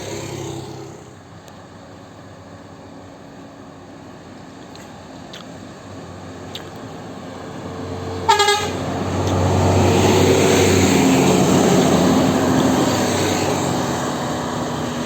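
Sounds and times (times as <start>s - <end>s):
heavy vehicle engine approaching: 0.0s - 15.0s
tyres on road: 0.0s - 15.0s
vehicle horn toot: 8.3s - 8.8s.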